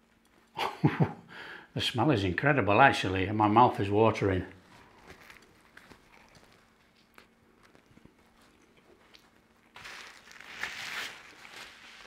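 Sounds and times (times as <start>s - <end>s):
paper napkin rustling: 4.6s - 7.0s, 9.6s - 12.0s
faint biting and chewing: 4.7s - 9.8s.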